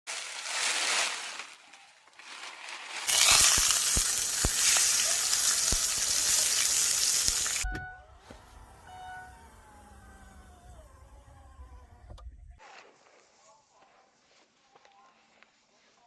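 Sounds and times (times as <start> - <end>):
campfire crackling: 3.0 - 7.6
food sizzling: 3.1 - 7.7.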